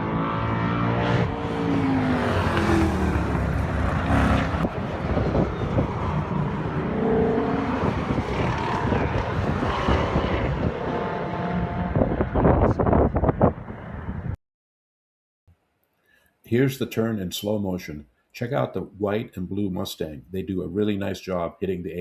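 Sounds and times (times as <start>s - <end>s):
race car engines cornering: 0.0s - 14.3s.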